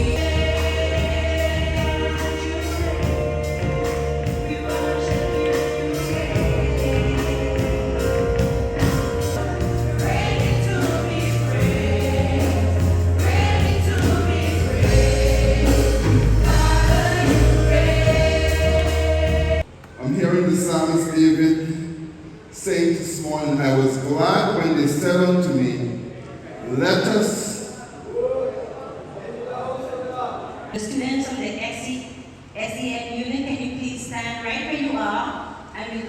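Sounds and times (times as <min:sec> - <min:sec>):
deep bass line: 0:00.0 - 0:19.6
steady beat: 0:00.0 - 0:19.6
choir singing gospel: 0:00.0 - 0:20.8.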